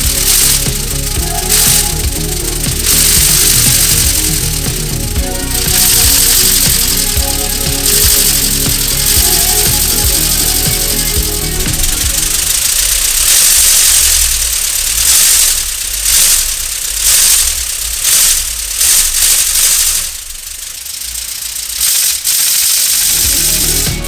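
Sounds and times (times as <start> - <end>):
hiss of exhausting air: 0.0 - 17.4.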